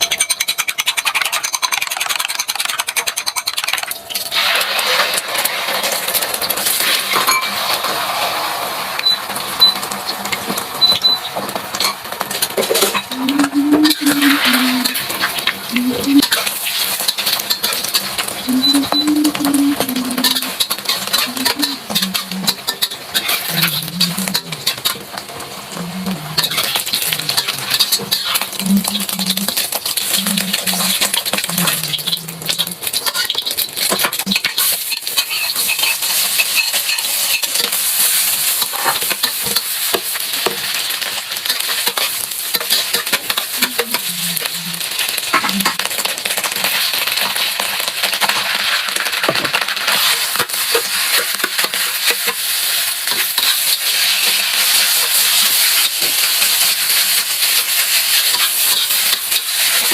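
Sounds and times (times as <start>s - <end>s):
utensil clicking against pan: 0.0s - 3.9s
food sizzling in a pan: 3.8s - 59.9s
spatula scraping a pan: 18.9s - 25.0s, 26.0s - 40.7s, 41.4s - 46.8s, 49.9s - 59.9s.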